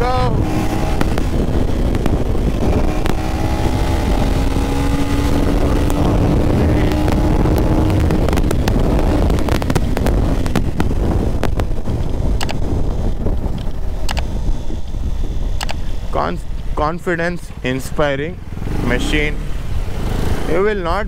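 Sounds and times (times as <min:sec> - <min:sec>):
motorcycle engine running: 0:00.0 - 0:16.8
wind rushing over microphone: 0:00.0 - 0:21.0
sharp ticks: 0:09.4 - 0:12.6, 0:13.5 - 0:14.3, 0:15.6 - 0:15.9.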